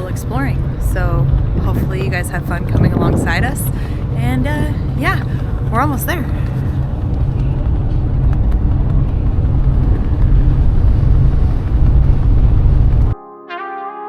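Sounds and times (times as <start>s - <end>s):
ferry engine rumble: 0.0s - 13.2s
brass music: 13.1s - 14.0s.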